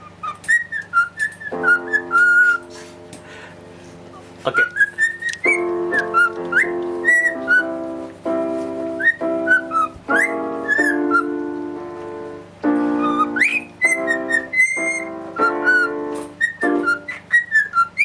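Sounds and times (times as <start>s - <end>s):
pet bird whistling: 0.0s - 2.8s, 4.5s - 7.9s, 8.8s - 11.6s, 12.8s - 18.0s
music with held chords: 0.0s - 18.0s.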